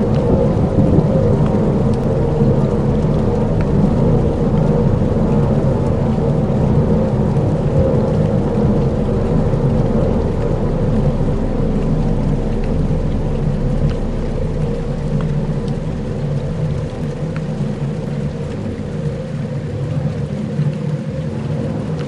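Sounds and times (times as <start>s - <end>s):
low rumble: 0.0s - 22.0s
soft ticks: 0.1s - 4.7s, 9.7s - 22.0s.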